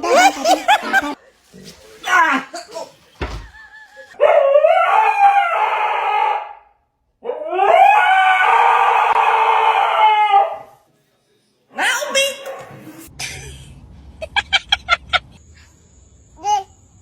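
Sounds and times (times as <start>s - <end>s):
dog howling: 4.1s - 6.6s, 7.2s - 10.8s.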